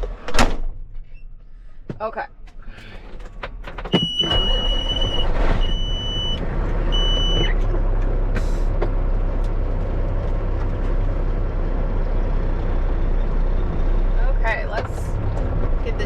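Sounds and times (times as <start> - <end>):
diesel truck engine rumble: 0.0 - 16.0
electronic warning beeps: 4.0 - 7.6.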